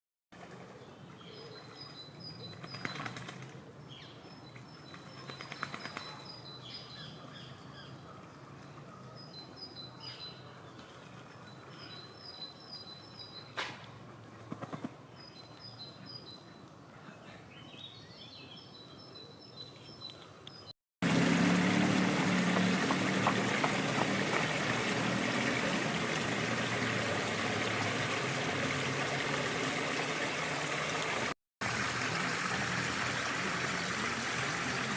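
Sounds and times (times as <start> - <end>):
songbird chirping: 14.8 - 20.7
water rushing: 21.0 - 34.9.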